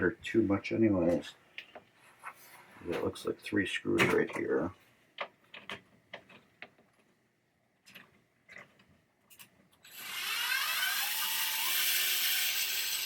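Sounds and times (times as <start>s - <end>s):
cordless drill running: 9.8s - 13.0s.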